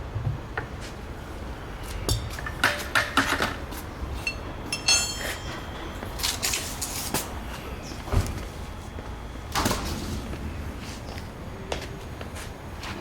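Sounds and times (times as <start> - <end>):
metal tools clinking and knocking: 4.2 - 6.6
metallic ring: 4.2 - 6.9.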